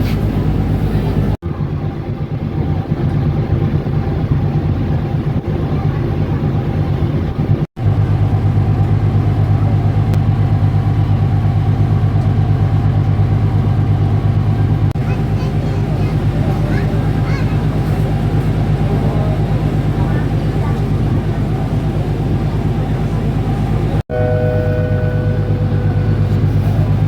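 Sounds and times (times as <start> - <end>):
ship diesel engines droning: 0.0 - 27.0.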